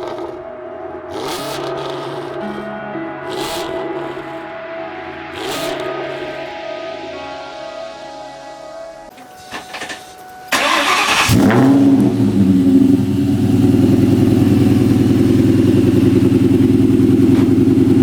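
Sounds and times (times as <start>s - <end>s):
car engine starting and idling: 9.4s - 18.0s.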